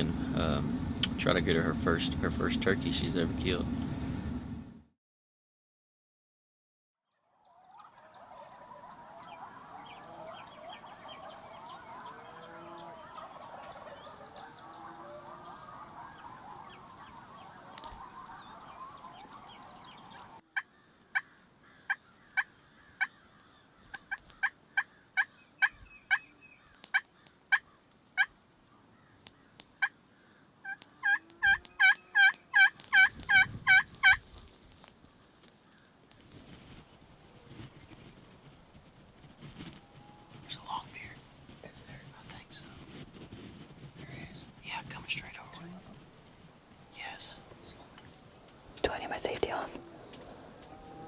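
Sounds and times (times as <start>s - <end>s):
chorus of birdsong: 7.1s - 33.4s, 34.8s - 38.4s, 39.6s - 51.0s
turkey clucks and yelps: 7.4s - 23.2s, 23.9s - 28.3s, 30.6s - 34.2s.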